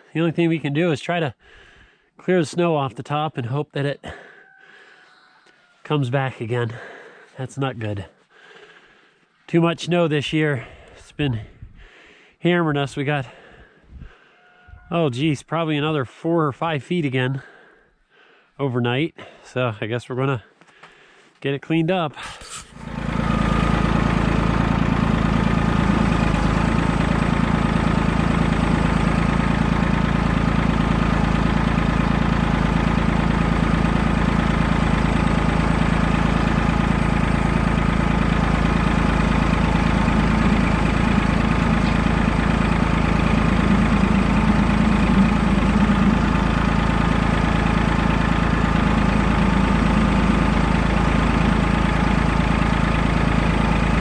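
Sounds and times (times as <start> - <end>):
tractor engine running: 22.2 - 54.0.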